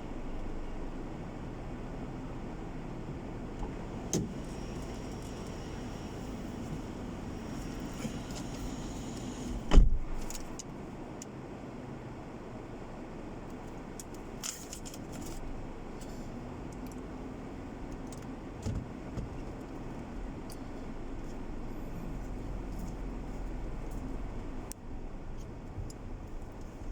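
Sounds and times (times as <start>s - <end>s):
car cabin hum: 0.0s - 11.1s
loud thump: 9.6s - 10.2s
small clicks and rattles: 13.5s - 15.5s.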